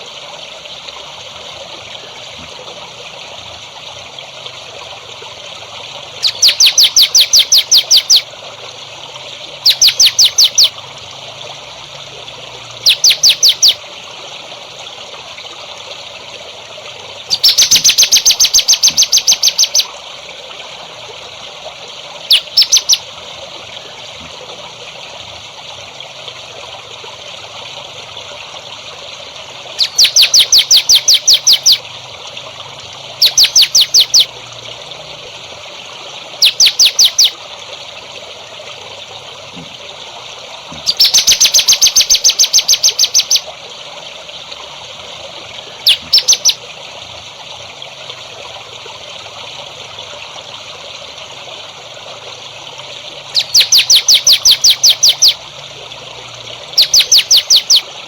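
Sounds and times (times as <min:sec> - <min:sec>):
water trickling: 0:00.0 - 0:58.0
songbird chirping: 0:06.2 - 0:08.2, 0:09.6 - 0:10.7, 0:12.8 - 0:13.8, 0:17.3 - 0:19.9, 0:22.3 - 0:23.0, 0:29.8 - 0:31.8, 0:33.2 - 0:34.3, 0:36.4 - 0:37.4, 0:40.9 - 0:43.4, 0:45.8 - 0:46.6, 0:53.4 - 0:55.4, 0:56.8 - 0:57.9.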